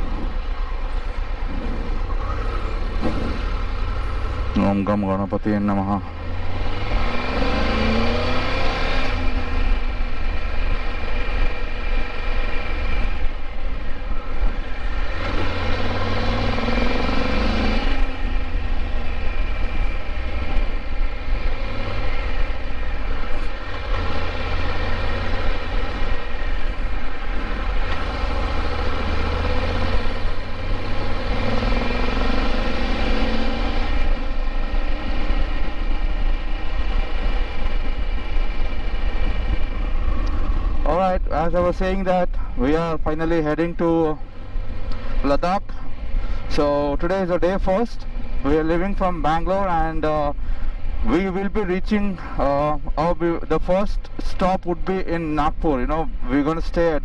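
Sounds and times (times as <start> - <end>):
motorcycle engine accelerating: 6.1 - 13.5, 14.5 - 40.9.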